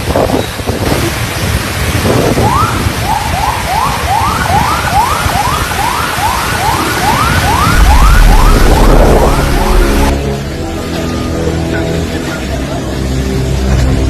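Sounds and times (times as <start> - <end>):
rain: 0.0 - 14.0
wind: 0.0 - 14.0
siren yelping: 2.4 - 10.2.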